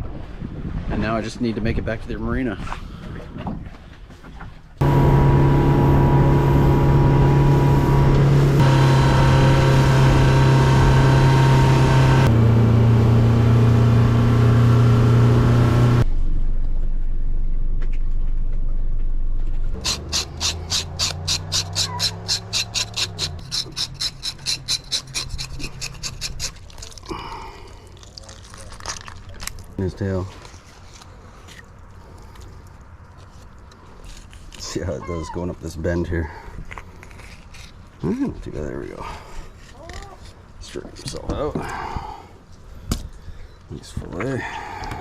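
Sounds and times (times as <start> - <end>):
boat engine running: 4.8 - 16.0
even rasping strokes: 19.8 - 27.2.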